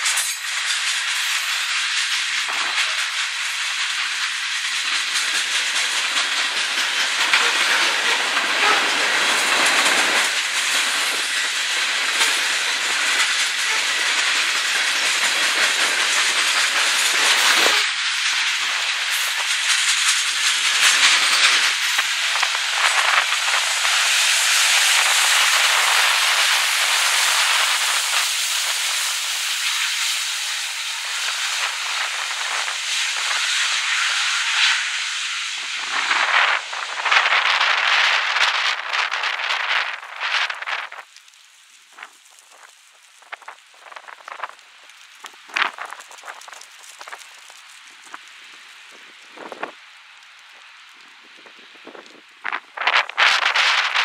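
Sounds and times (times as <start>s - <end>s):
train cars clattering: 0.0s - 41.1s
train wheels hissing on rails: 0.0s - 54.0s.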